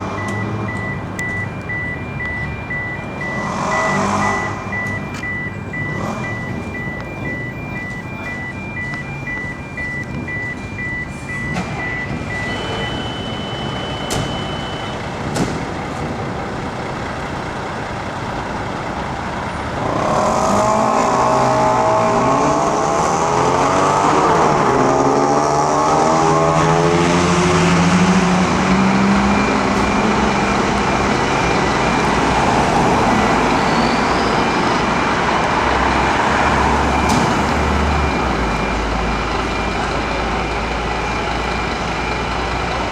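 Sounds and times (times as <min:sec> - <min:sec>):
siren sweeping up and down: 0:00.0 - 0:15.0, 0:19.8 - 0:42.9
diesel engines running: 0:00.0 - 0:42.9
short repeating beep: 0:00.2 - 0:15.1, 0:36.7 - 0:38.9.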